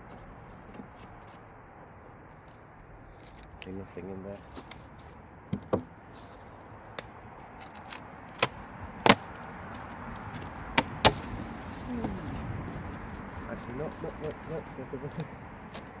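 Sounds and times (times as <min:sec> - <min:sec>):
hive box knocks and clicks: 0:05.5 - 0:06.0, 0:07.9 - 0:09.4, 0:10.3 - 0:11.4.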